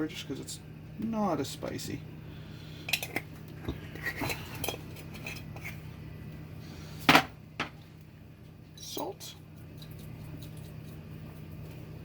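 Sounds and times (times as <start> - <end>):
utensils and containers clinking: 2.8 - 5.8.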